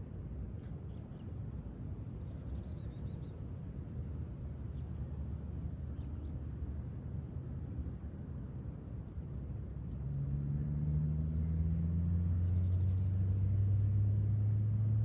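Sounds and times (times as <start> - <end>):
low background rumble: 11.7 - 15.0.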